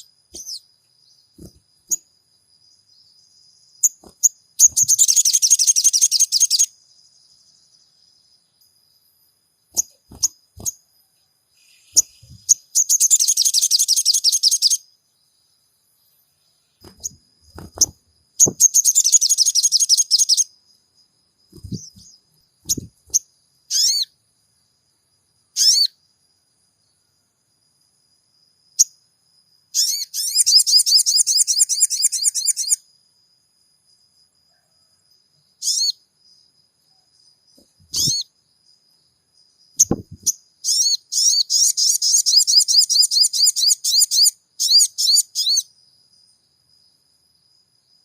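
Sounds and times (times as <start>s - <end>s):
songbird trilling: 0.0s - 0.7s, 3.8s - 6.7s, 9.7s - 10.8s, 11.6s - 14.9s, 16.8s - 20.5s, 21.5s - 24.1s, 25.6s - 25.9s, 29.7s - 32.8s, 35.6s - 36.0s, 37.8s - 38.3s, 39.8s - 45.7s
sharp bird chirps: 0.0s - 8.8s, 9.6s - 24.2s, 25.4s - 26.1s, 29.6s - 32.9s, 35.4s - 38.8s, 39.4s - 46.4s.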